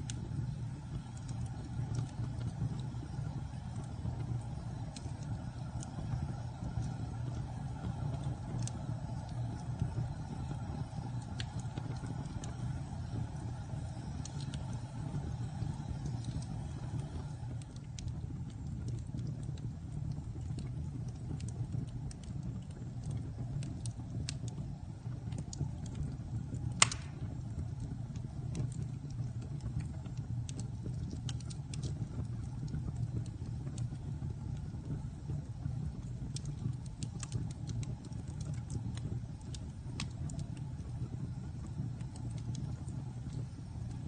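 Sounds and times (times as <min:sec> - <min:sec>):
wood fire crackling: 0:00.0 - 0:44.0
loud pop from fire: 0:26.7 - 0:27.4.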